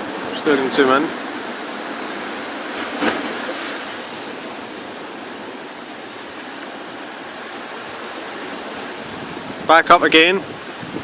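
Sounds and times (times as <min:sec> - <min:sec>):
sea surf washing on shore: 0:00.0 - 0:11.0.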